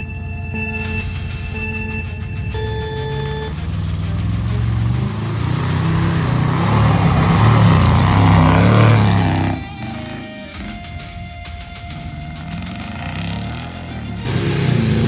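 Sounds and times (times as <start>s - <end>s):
truck engine revving hard: 2.6s - 11.0s, 12.1s - 15.0s.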